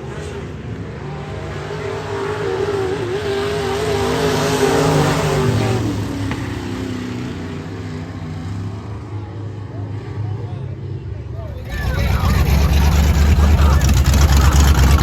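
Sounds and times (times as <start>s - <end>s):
race car engine passing by: 11.4s - 15.0s.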